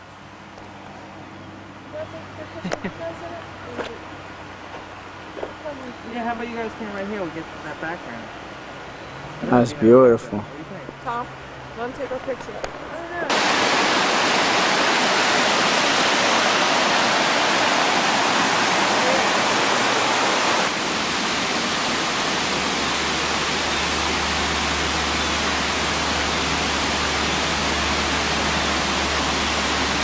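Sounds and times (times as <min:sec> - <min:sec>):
creek water rushing: 0:12.8 - 0:30.0.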